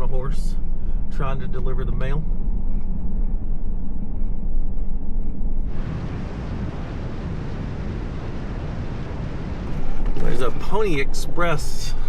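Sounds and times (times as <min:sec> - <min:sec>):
truck engine and tyres rumbling: 0:00.0 - 0:12.0
wind and road noise: 0:00.0 - 0:12.0.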